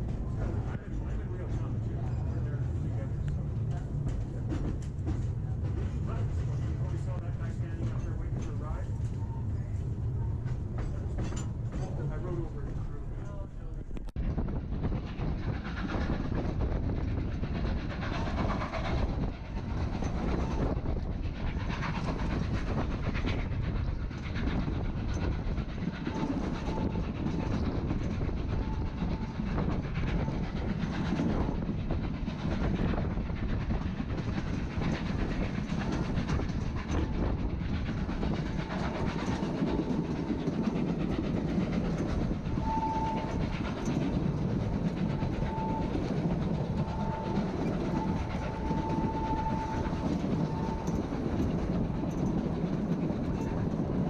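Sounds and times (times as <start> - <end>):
train rumbling on track: 0.0 - 54.0
wheels clicking over rail joints: 33.7 - 54.0.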